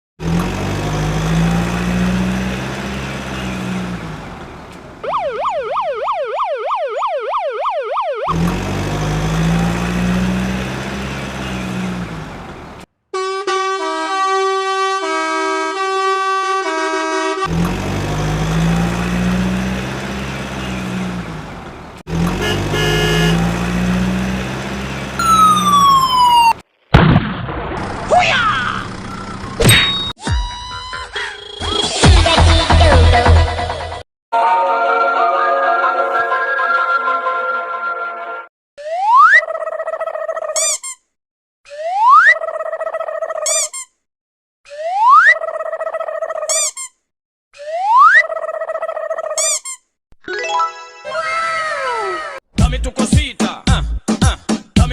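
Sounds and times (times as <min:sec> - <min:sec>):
wailing siren: 0:05.0 - 0:10.3, 0:25.2 - 0:26.6, 0:38.8 - 0:39.6, 0:44.7 - 0:45.4
falling whistle: 0:25.2 - 0:26.5
jingle of plinked notes: 0:50.3 - 0:51.2.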